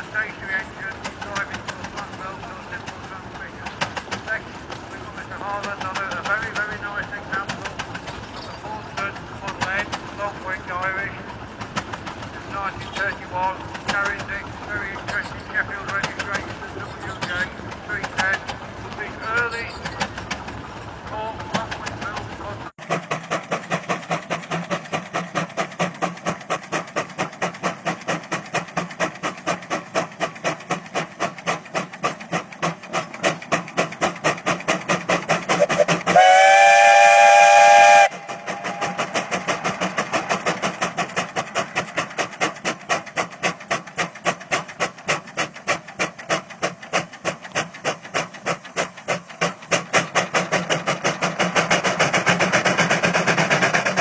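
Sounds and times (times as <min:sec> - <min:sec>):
vintage engine beating steadily: 0:00.0 - 0:54.0
steam whistle chord: 0:35.6 - 0:39.0.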